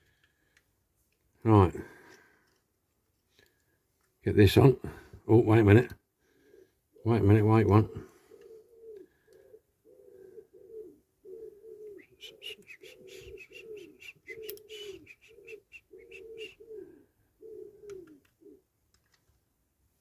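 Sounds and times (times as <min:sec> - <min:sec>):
pigeon cooing: 0:06.4 - 0:18.7.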